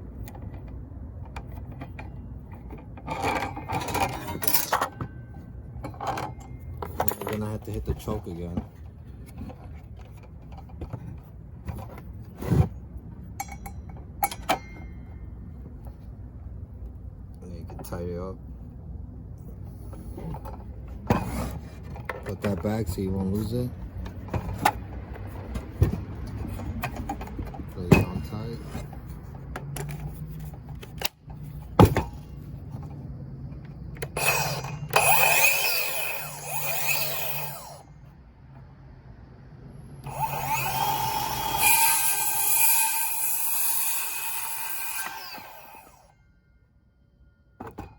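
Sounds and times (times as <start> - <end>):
tool scraping on saw: 34.1 - 37.8, 40.0 - 46.1.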